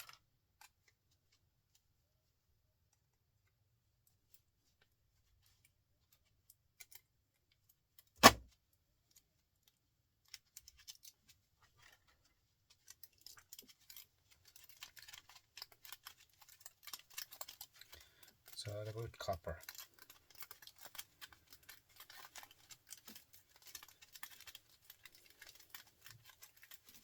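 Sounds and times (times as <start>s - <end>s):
sharp knock: 8.2s - 8.4s.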